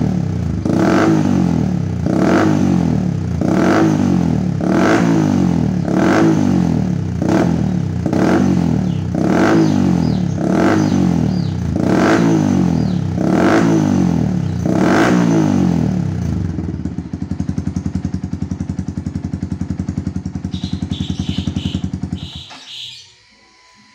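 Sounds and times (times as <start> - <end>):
motorcycle engine revving: 0.0 - 23.9
motorcycle engine idling: 5.4 - 23.1.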